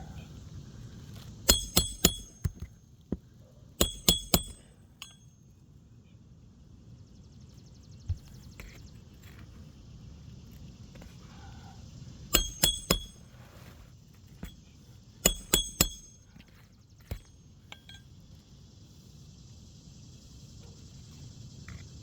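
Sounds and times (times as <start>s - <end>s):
hammer striking nails: 1.5s - 2.7s, 3.8s - 5.2s, 12.3s - 13.2s, 15.2s - 16.2s.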